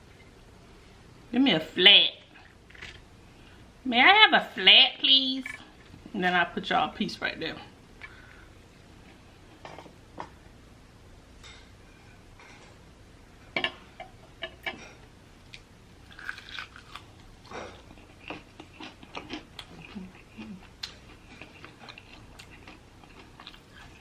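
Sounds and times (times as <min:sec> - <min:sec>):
crunching and chewing chicken: 0:15.5 - 0:24.0.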